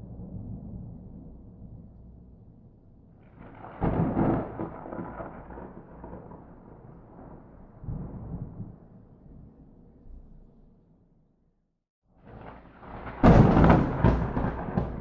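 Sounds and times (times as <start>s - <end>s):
thunder rumble: 0.0s - 10.7s, 12.2s - 15.0s
loud thunder crack: 3.4s - 8.8s, 12.4s - 15.0s.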